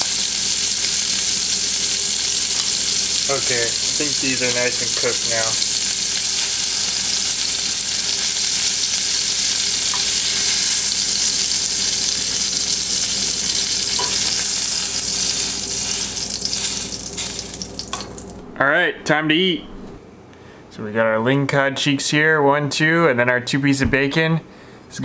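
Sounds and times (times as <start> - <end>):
fish sizzling in a skillet: 0.0 - 18.4.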